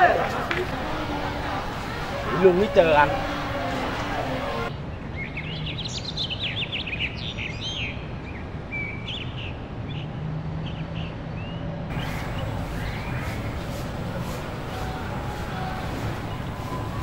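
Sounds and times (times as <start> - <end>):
low outdoor background hum: 11.9 - 17.0
small birds chirping: 11.9 - 17.0.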